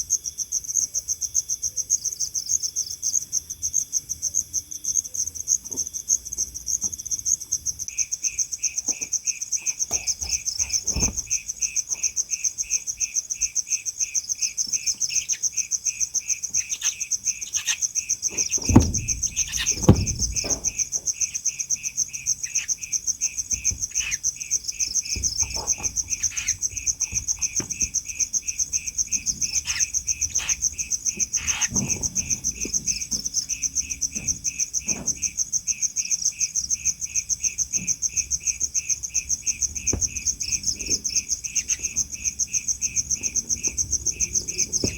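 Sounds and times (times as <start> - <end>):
crickets chirping: 0.0 - 44.9
dull knocks: 9.9 - 12.1, 18.2 - 21.4, 23.2 - 35.4, 39.2 - 44.9.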